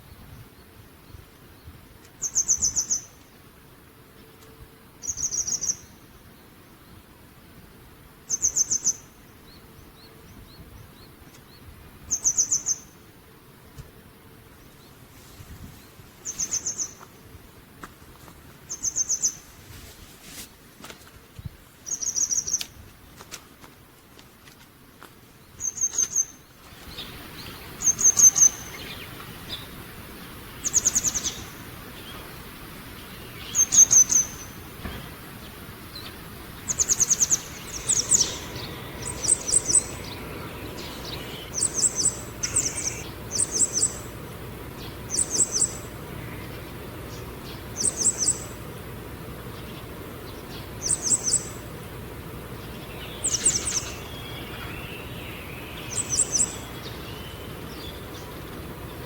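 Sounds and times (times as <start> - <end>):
small songbird calling: 0.0 - 3.4, 4.2 - 7.1, 8.2 - 13.1, 15.8 - 17.2, 18.6 - 19.5, 21.4 - 22.8, 25.4 - 48.8, 49.4 - 51.8, 52.5 - 59.0.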